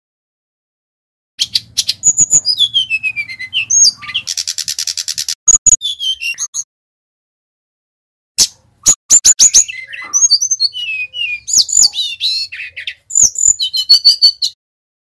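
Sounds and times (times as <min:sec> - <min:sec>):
flycatcher singing: 0:01.4 - 0:06.7, 0:08.8 - 0:14.6.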